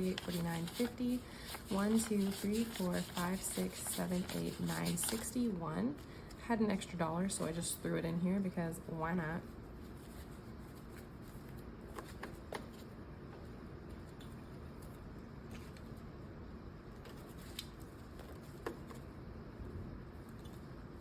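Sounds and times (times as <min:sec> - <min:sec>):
paper rustling: 0:00.0 - 0:05.3, 0:17.0 - 0:19.1.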